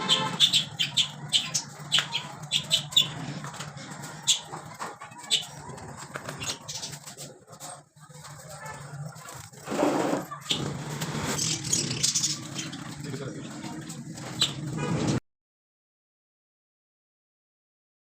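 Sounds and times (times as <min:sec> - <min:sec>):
parrots flapping wings: 0:01.6 - 0:15.2.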